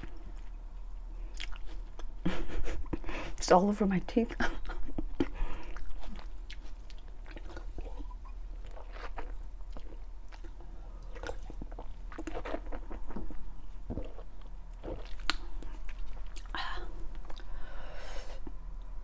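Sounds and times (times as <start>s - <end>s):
chewing crisp lettuce: 0.0s - 2.3s, 4.6s - 16.6s.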